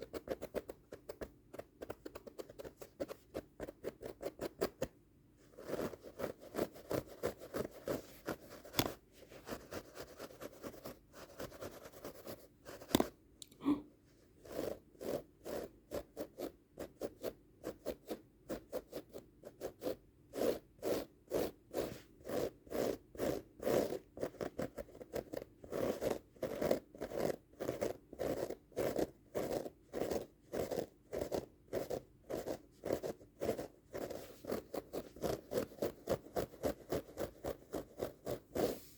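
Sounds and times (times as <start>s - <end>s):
scratching on carpet rug: 5.4s - 12.8s, 20.4s - 38.9s.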